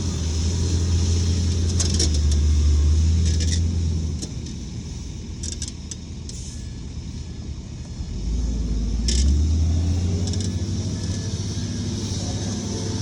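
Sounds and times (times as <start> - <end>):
heavy diesel machinery engine drone: 0.0 - 13.0
metallic clinks and squeals: 3.2 - 3.7, 10.1 - 13.0.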